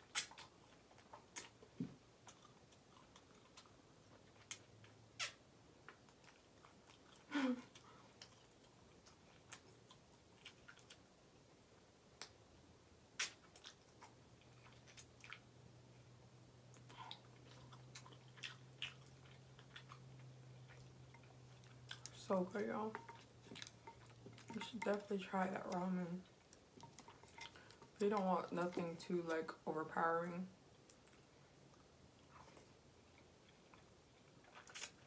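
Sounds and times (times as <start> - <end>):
mouth clicks and smacks: 0.0 - 1.6, 4.4 - 6.1, 13.2 - 14.0
chewing noodles: 0.0 - 11.1, 13.2 - 16.0, 16.7 - 29.6, 30.8 - 35.0.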